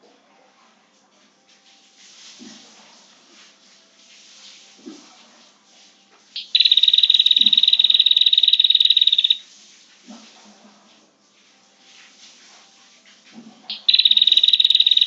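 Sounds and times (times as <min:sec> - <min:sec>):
bird chattering trill: 0:06.4 - 0:09.4, 0:13.7 - 0:15.0.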